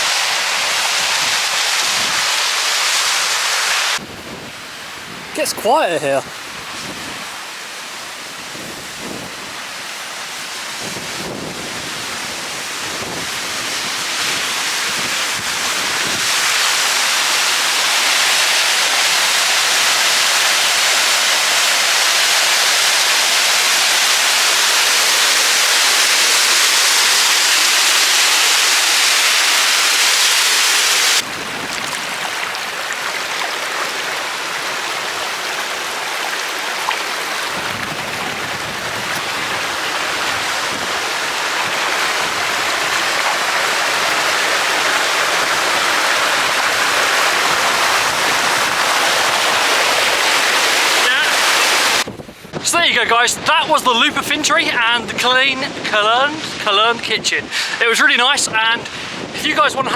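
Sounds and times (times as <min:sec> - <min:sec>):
waterfall rushing: 0:00.0 - 0:04.0, 0:05.4 - 0:08.5, 0:12.4 - 0:52.1.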